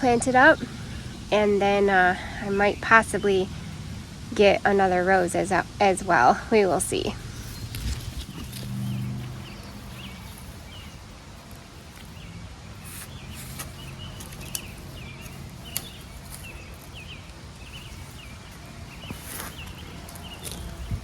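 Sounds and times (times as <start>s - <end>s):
small bird chirping: 7.2s - 21.0s
hand tool digging in soil: 7.3s - 20.9s.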